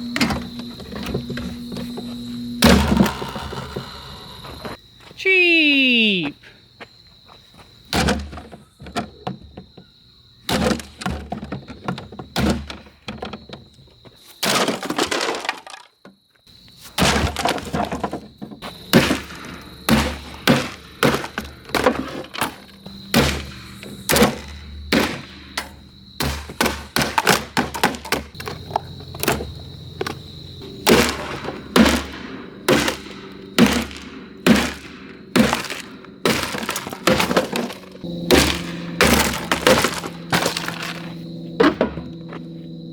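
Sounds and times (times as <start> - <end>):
fan being smashed: 0.0 - 3.9, 7.9 - 8.6, 10.4 - 13.4, 14.4 - 16.0, 16.9 - 30.2, 30.8 - 42.2.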